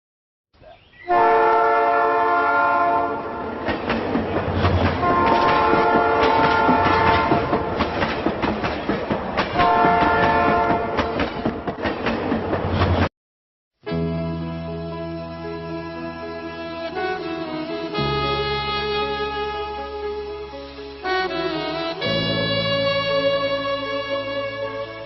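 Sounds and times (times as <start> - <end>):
train horn blasts: 1.1 - 3.6, 5.0 - 7.8, 9.6 - 11.1, 16.7 - 25.0
train wheels clacking on rails: 3.5 - 13.1.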